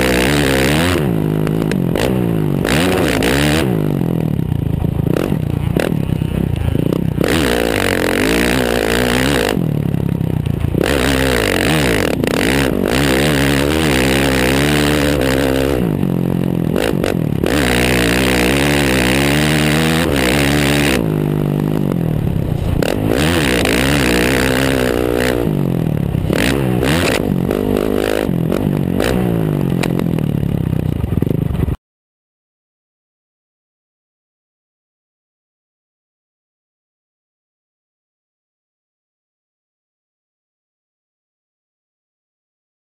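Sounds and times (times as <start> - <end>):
motocross bike engine revving: 0.0 - 31.8
rattling and scraping: 16.7 - 29.0.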